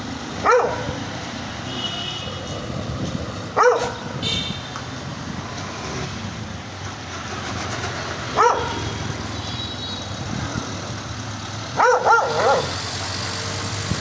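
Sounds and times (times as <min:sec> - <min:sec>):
dog barking angrily: 0:00.4 - 0:01.1, 0:03.6 - 0:04.2, 0:08.3 - 0:08.9, 0:11.7 - 0:12.9.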